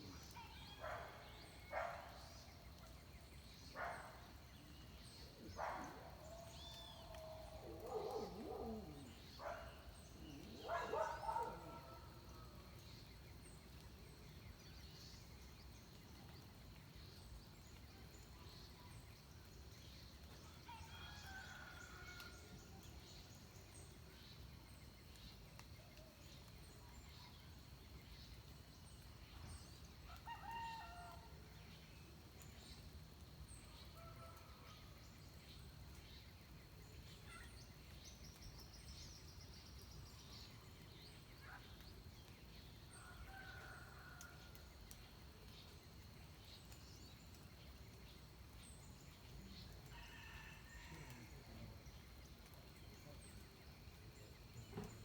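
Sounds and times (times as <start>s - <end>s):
small birds chirping: 0.0s - 21.8s.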